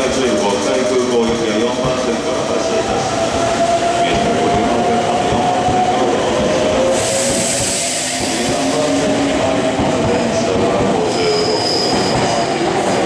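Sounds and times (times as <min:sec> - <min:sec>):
loud hiss: 0:06.9 - 0:09.1.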